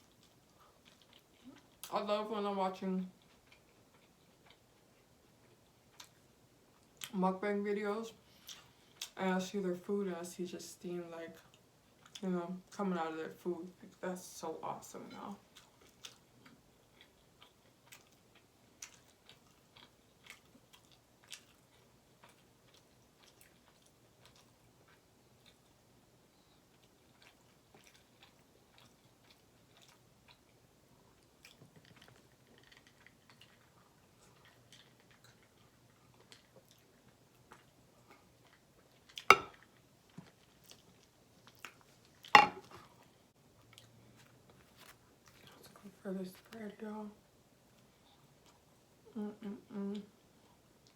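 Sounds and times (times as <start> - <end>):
person chewing food: 0.0 - 1.9, 3.2 - 7.1, 15.5 - 25.8, 26.4 - 43.0
utensil clinking against dish: 39.3 - 39.6.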